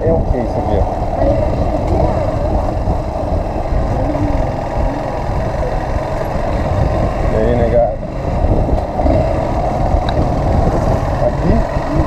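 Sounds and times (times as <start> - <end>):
motorcycle engine running: 0.0 - 12.0
wind buffeting microphone: 0.0 - 12.0.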